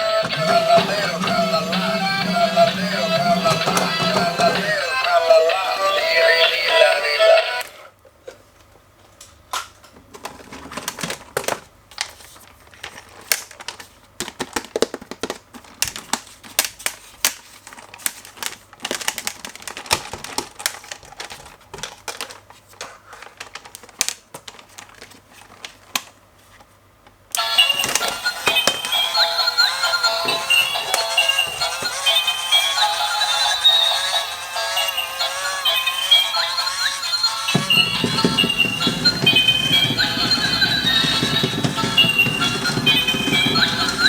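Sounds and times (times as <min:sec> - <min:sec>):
background music: 0:00.0 - 0:07.6, 0:27.4 - 0:44.0.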